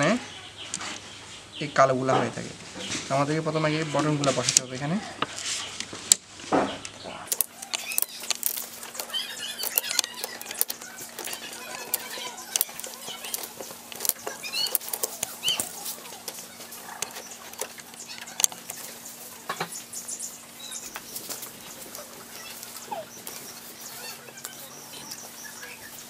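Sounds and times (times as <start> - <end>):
birds chirping: 0.0 - 26.0
faint steady hum: 4.5 - 26.0
plastic keyboard keys clicking: 7.3 - 18.9.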